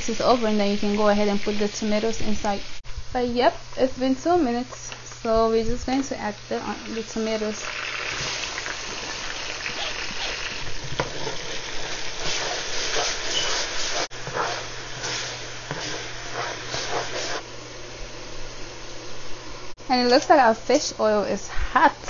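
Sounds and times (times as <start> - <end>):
vegetables sizzling in hot oil: 5.9 - 17.4
spatula stirring in a pot: 9.6 - 17.4.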